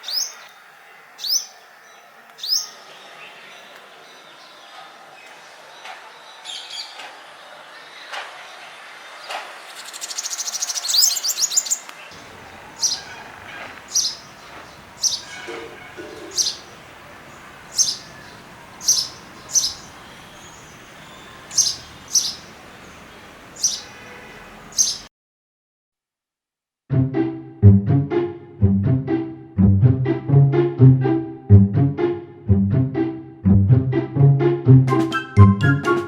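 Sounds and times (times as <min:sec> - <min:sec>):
small songbird chirping: 0:00.0 - 0:00.5, 0:09.7 - 0:25.1.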